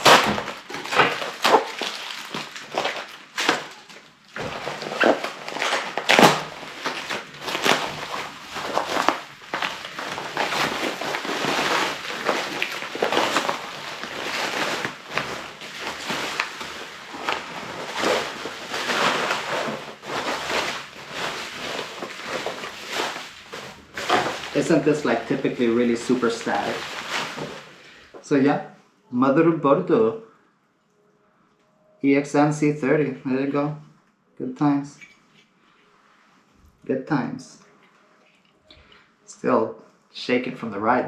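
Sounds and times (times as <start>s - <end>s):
packaging crinkling and rustling: 0.0s - 28.3s.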